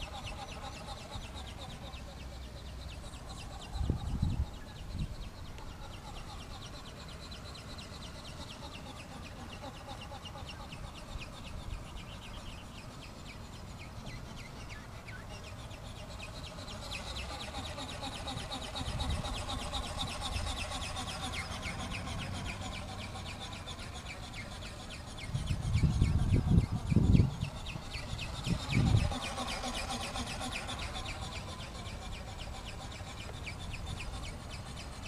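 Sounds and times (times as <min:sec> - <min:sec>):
birds chattering: 0:00.0 - 0:35.0.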